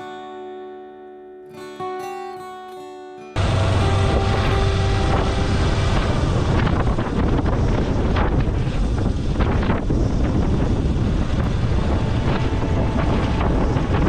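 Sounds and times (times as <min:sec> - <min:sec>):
motorcycle engine: 0:03.4 - 0:08.0, 0:11.3 - 0:14.0
road noise: 0:03.4 - 0:14.0
wind buffeting microphone: 0:03.4 - 0:14.0.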